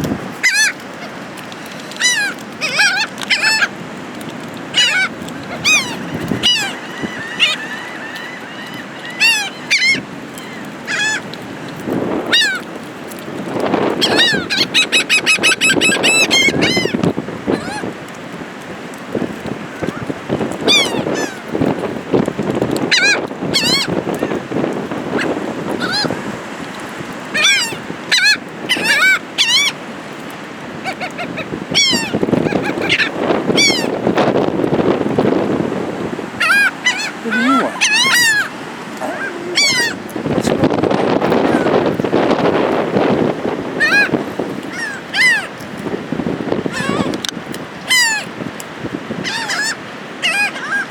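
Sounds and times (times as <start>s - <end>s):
gulls calling: 0.0s - 18.2s, 19.6s - 45.8s, 46.6s - 50.9s
surf: 0.0s - 50.9s
wind: 0.0s - 50.9s
birds calling sharply: 36.3s - 40.6s.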